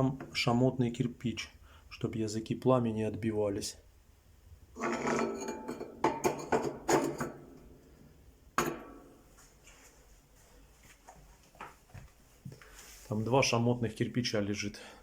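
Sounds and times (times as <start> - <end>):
metallic clanks and clinks: 4.8 - 7.4.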